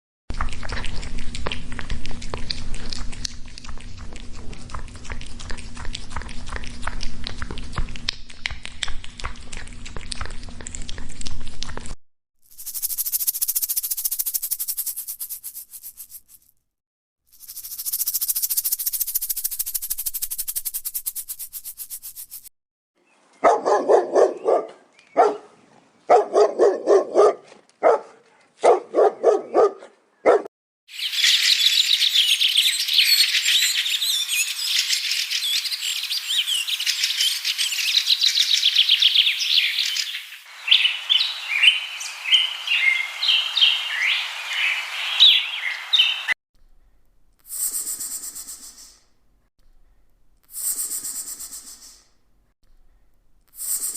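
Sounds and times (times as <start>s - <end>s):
high rapid insect buzzing: 12.4s - 16.5s, 17.3s - 22.5s, 47.5s - 48.9s, 50.5s - 52.0s, 53.6s - 53.9s
birds chirping: 23.0s - 25.7s, 31.0s - 46.4s.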